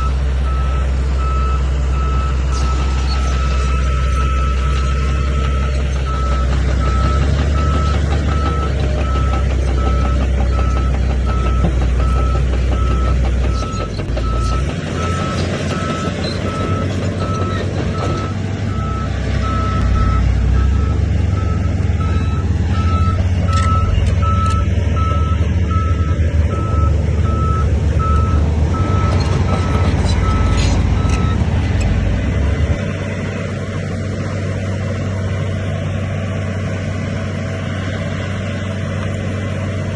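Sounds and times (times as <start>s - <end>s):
reverse alarm beeping: 0.0s - 31.4s
deep diesel engine: 0.0s - 39.9s.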